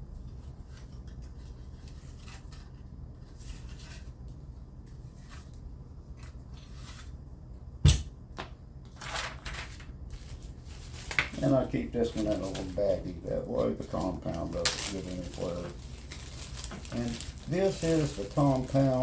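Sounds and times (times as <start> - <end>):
sharp knock: 7.8 - 8.1.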